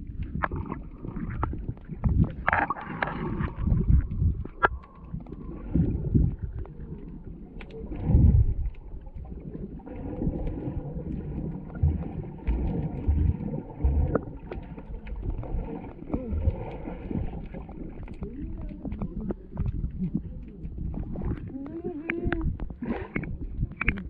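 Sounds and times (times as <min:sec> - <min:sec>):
boat hull moving through water: 0:00.0 - 0:24.0
wind buffeting microphone: 0:03.5 - 0:04.6.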